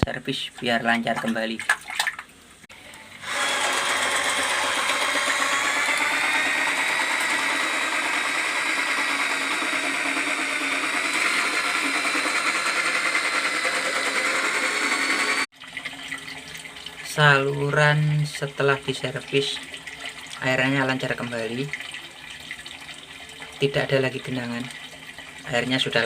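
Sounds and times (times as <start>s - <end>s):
drain-cleaning machine whining: 2.7s - 15.5s.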